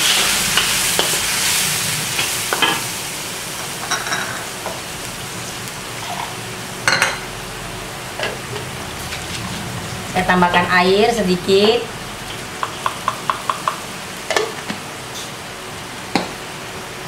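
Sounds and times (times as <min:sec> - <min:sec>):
paste sizzling in hot oil: 0:00.0 - 0:06.8.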